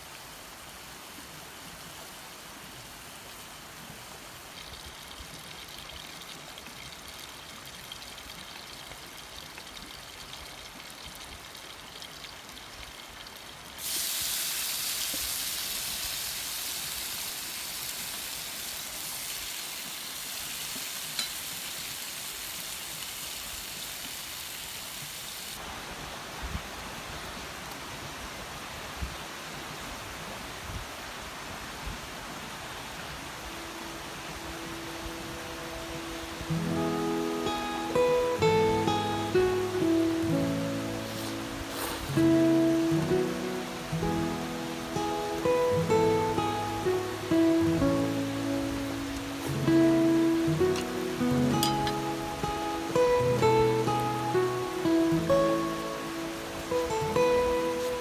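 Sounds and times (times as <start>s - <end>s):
water hissing: 13.8s - 25.6s, 33.4s - 58.0s.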